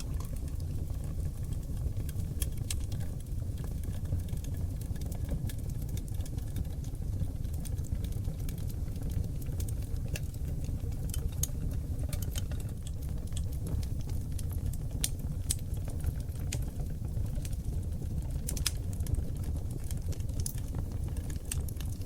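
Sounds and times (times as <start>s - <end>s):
low rumble of flames: 0.0s - 22.0s
wood fire crackling and popping: 0.0s - 22.0s.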